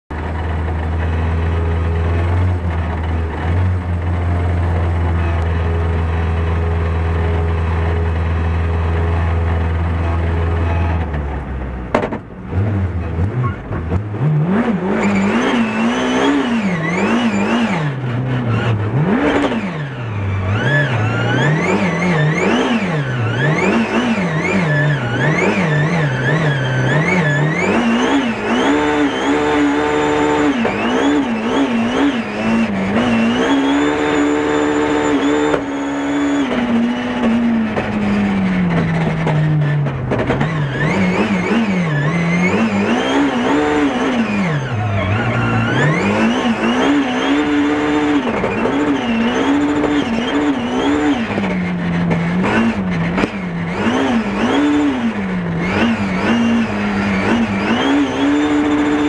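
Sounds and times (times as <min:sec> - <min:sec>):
car engine idling: 0:00.1 - 0:15.0
car engine revving: 0:00.1 - 0:59.0.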